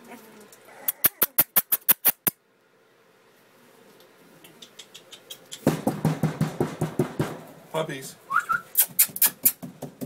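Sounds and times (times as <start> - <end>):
sharp clicks: 1.0 - 2.4.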